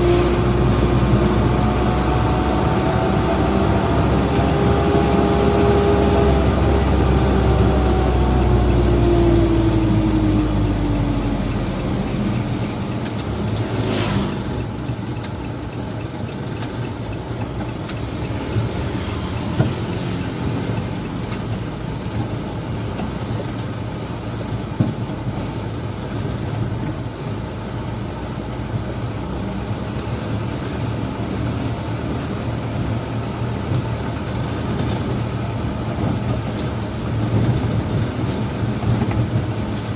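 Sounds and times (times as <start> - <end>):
dump truck engine running: 0.0 - 29.6.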